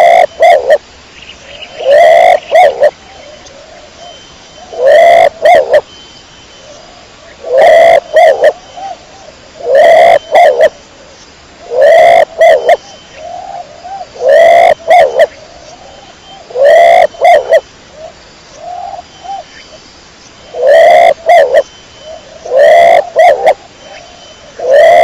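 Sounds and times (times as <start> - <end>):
pigeon cooing: 0.0 - 0.8, 1.8 - 5.8, 7.4 - 9.0, 9.6 - 10.7, 11.6 - 15.4, 16.5 - 17.6, 20.6 - 25.0.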